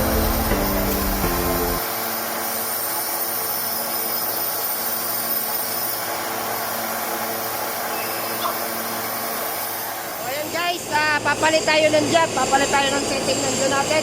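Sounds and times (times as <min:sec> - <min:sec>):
machinery humming and whining: 0:00.0 - 0:03.1.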